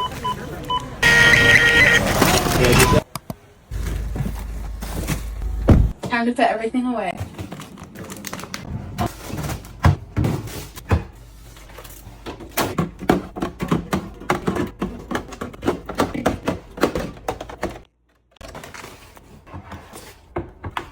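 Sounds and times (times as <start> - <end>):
packages thunking and clattering: 3.7 - 6.1, 7.2 - 20.9.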